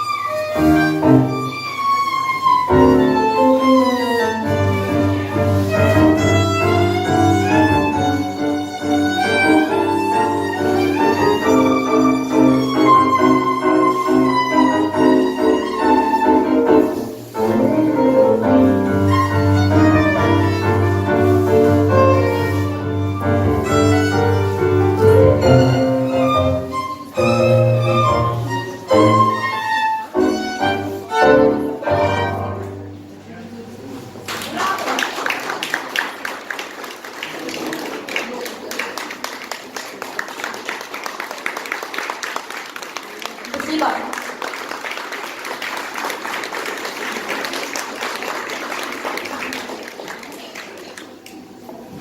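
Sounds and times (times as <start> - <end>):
violin melody: 0.0 - 33.0
piano: 0.0 - 34.1.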